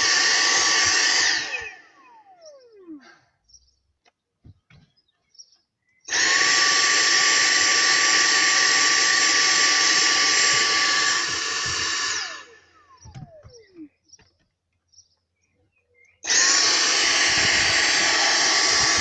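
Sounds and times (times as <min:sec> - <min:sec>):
vacuum cleaner motor whining: 0:00.0 - 0:03.2, 0:06.1 - 0:14.3, 0:16.2 - 0:19.0.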